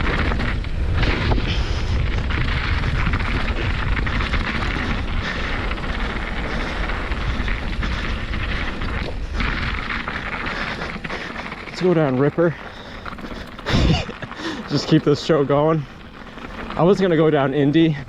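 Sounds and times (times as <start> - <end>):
mountain bike rattling on dirt trail: 0.0 - 18.0
wind buffeting microphone: 0.0 - 18.0.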